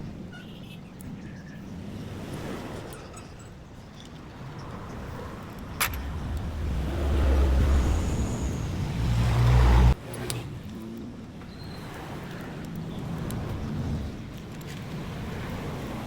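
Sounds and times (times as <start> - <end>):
vehicle engine rumbling: 5.5 - 10.0
sharp click: 5.8 - 6.5.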